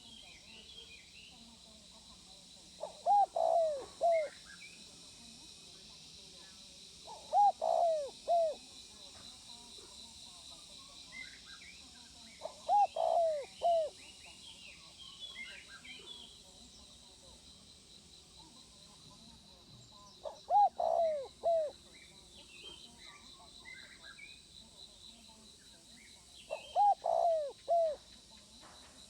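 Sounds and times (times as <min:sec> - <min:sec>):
small birds chirping: 0:00.0 - 0:05.4, 0:06.4 - 0:10.0, 0:10.8 - 0:17.4, 0:18.4 - 0:29.0
dove cooing: 0:02.7 - 0:04.4, 0:07.0 - 0:08.6, 0:12.4 - 0:14.0, 0:20.2 - 0:21.9, 0:26.5 - 0:28.1.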